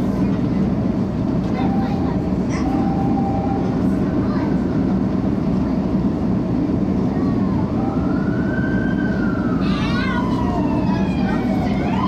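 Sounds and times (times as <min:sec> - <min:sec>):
wheels rumbling on rail: 0:00.0 - 0:12.0.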